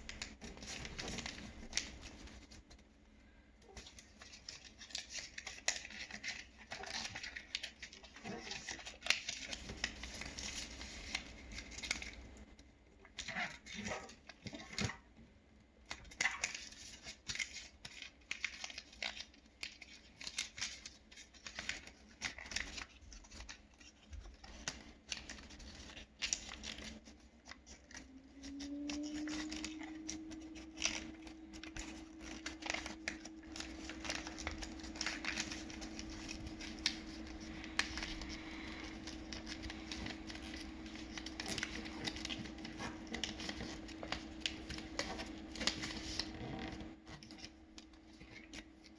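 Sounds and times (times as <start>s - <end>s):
paper rustling and crinkling: 0.0s - 2.9s, 3.6s - 15.1s, 15.8s - 48.9s
paper creasing clicks: 16.0s - 48.9s
steady low hum: 27.1s - 48.9s.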